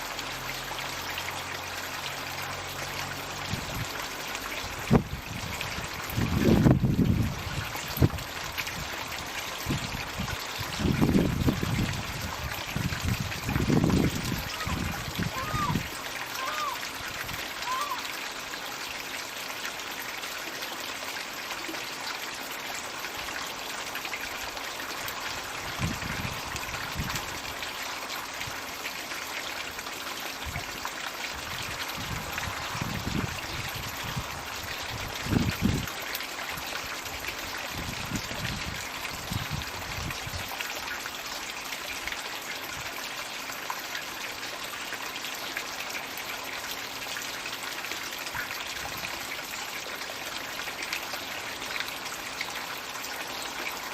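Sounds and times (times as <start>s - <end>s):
water pouring into pond: 0.0s - 53.9s.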